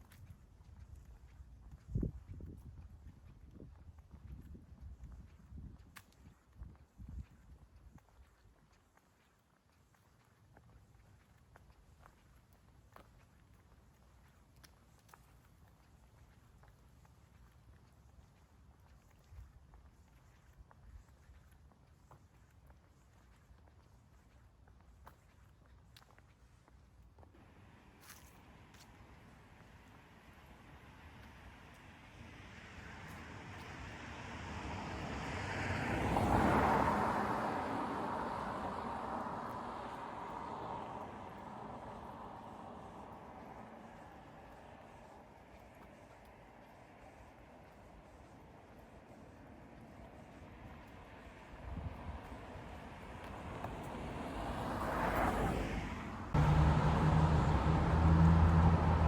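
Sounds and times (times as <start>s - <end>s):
car passing: 27.4s - 59.0s.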